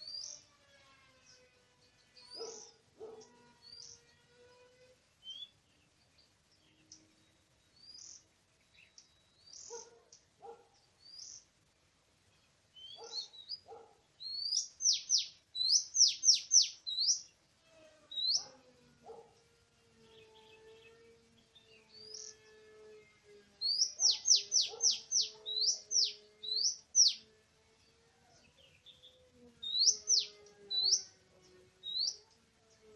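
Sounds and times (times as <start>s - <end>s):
bird chirping: 0.0s - 4.2s, 5.0s - 17.5s, 18.1s - 32.9s.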